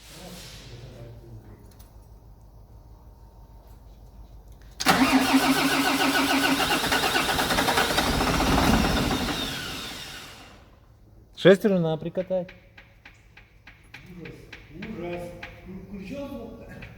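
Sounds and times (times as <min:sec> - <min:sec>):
truck diesel engine starting: 0:04.8 - 0:10.9.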